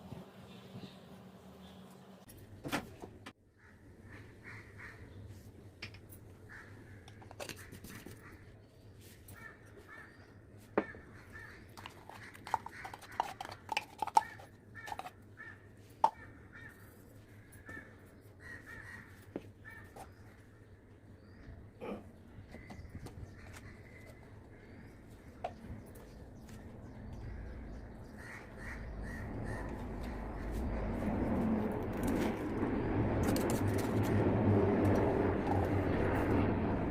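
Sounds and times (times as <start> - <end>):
steady low hum: 19.6 - 36.9.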